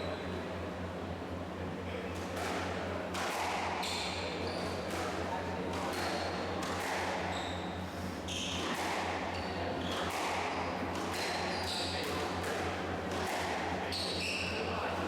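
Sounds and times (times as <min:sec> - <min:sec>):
shoes squeaking on court floor: 0:07.2 - 0:10.7, 0:11.3 - 0:12.0.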